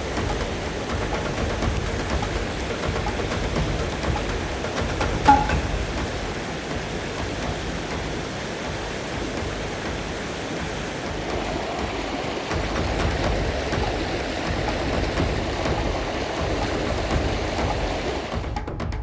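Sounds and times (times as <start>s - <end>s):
mountain stream water rushing: 0.0s - 18.6s
short sharp sound: 5.3s - 5.9s.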